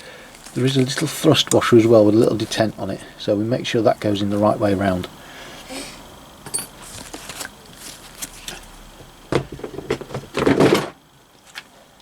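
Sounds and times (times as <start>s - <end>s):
metal parts clinking: 6.4s - 6.9s.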